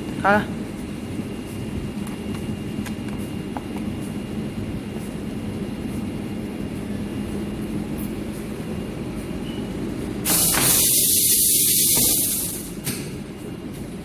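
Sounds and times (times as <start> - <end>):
welding machine humming: 10.2 - 13.0
loud hiss: 10.3 - 12.8.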